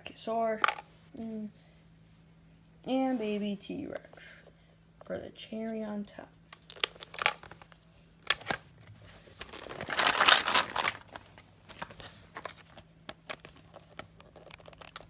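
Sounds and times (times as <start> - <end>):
plastic figures rattling: 0.6 - 0.8, 6.6 - 7.7, 9.4 - 11.2.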